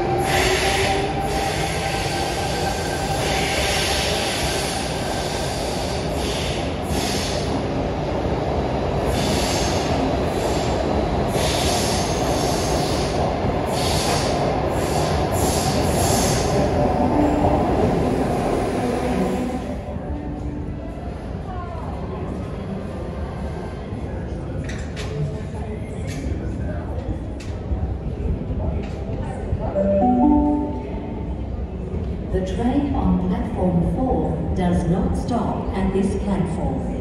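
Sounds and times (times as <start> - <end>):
train wheels rumbling on rail: 0.0 - 29.6.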